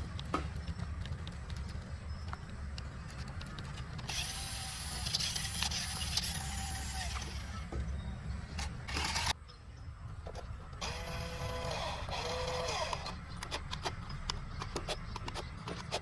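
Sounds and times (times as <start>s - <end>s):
toy car motor whirring: 4.0s - 7.7s, 8.6s - 9.4s, 10.8s - 16.0s.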